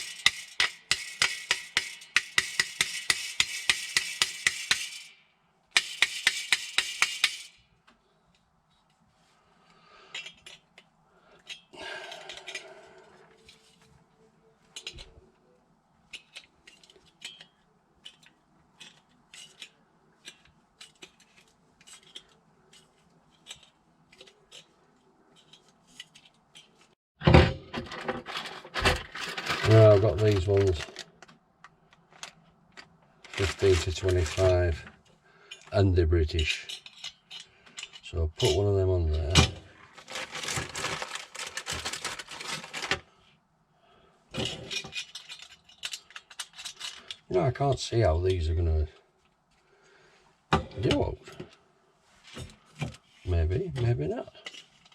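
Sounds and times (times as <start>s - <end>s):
small metal parts clinking: 0.0s - 8.9s, 10.1s - 13.8s, 14.7s - 15.2s, 16.0s - 27.0s, 27.7s - 34.9s, 35.5s - 43.0s, 44.3s - 47.3s, 54.4s - 54.9s
metal hose clip being handled: 10.1s - 12.7s, 14.7s - 15.2s, 16.0s - 26.9s, 36.4s - 39.4s, 44.4s - 47.3s.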